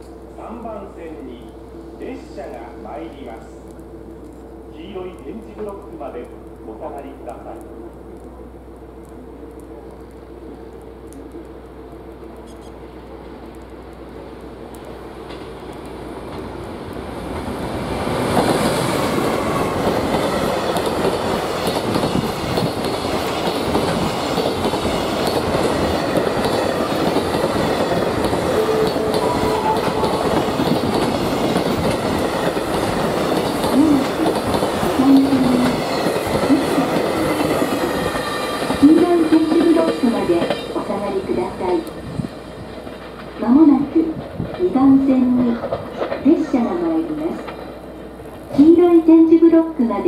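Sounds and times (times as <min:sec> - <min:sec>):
wagon wheels rumbling on rails: 0:17.2 - 0:48.8.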